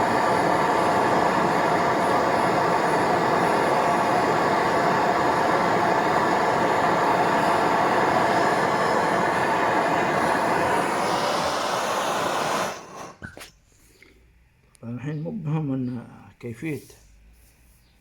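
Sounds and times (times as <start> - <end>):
torch flame hissing: 0.0 - 13.9.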